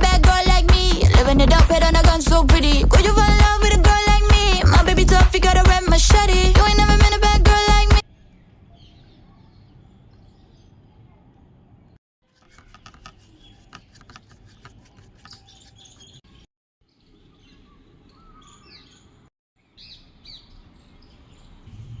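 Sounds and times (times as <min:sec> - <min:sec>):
small birds chirping: 0:08.0 - 0:22.0.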